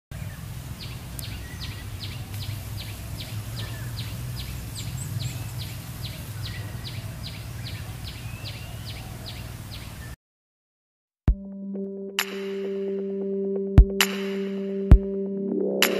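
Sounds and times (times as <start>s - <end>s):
small bird calling: 0.2s - 10.2s.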